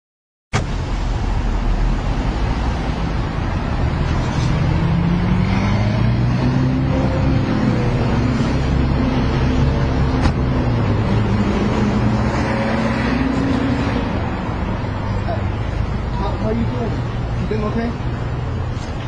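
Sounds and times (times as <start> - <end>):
car engine revving: 3.9 - 14.8.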